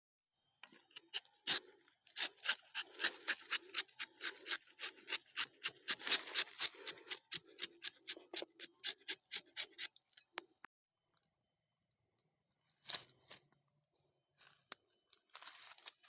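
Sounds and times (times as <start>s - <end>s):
knife scraping bark: 0.6s - 10.6s.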